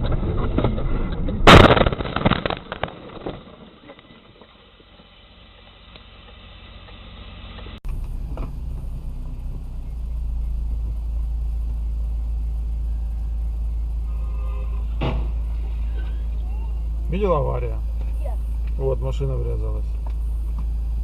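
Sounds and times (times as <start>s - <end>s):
car driving rumble from inside: 4.9s - 21.0s.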